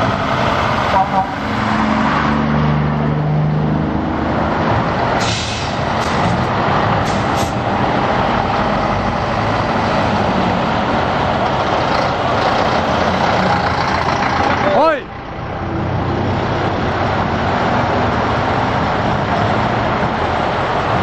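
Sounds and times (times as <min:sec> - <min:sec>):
truck diesel engines rumbling: 0:00.0 - 0:21.0
air brakes hissing: 0:05.2 - 0:06.2, 0:07.0 - 0:07.6.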